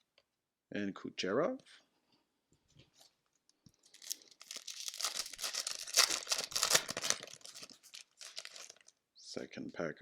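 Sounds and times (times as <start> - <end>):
plastic wrapper crinkling and tearing: 3.8 - 9.0.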